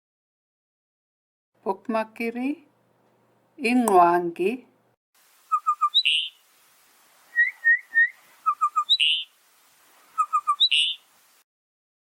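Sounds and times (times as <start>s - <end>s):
bird calling: 5.4s - 6.6s, 7.2s - 11.4s
whistled notes: 5.5s - 6.3s, 7.3s - 9.3s.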